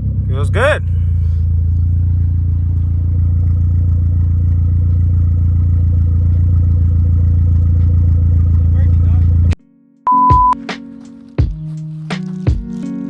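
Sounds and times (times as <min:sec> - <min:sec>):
car engine running at low revs: 0:00.0 - 0:09.6.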